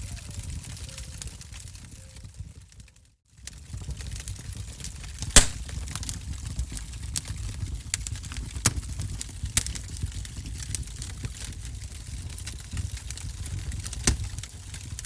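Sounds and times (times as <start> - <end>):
wood fire crackling: 3.4 - 15.0.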